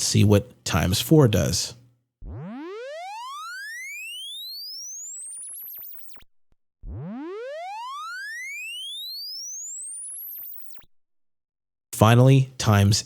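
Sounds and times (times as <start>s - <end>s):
rising sine sweep tone: 2.2s - 10.9s.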